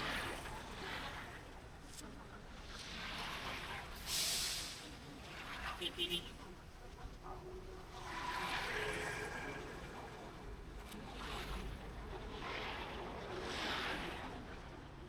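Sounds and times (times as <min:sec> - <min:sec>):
traffic noise: 0:04.6 - 0:15.0.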